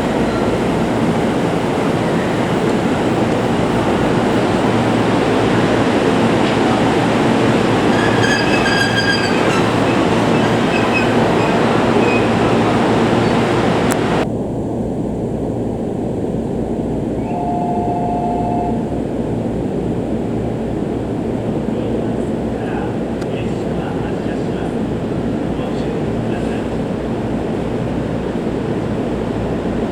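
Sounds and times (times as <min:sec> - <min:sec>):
electric train rumbling on rails: 0:00.0 - 0:29.9
two-note tone: 0:17.2 - 0:19.0.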